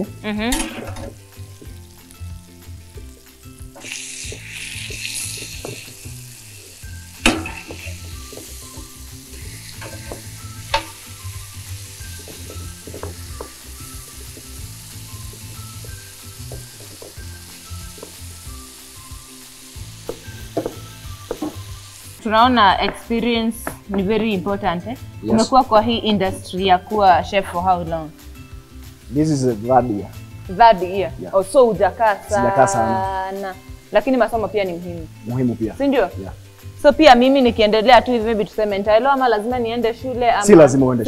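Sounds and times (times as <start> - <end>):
soft background music: 0.0 - 41.0
chicken sizzling in a grill pan: 1.2 - 22.2.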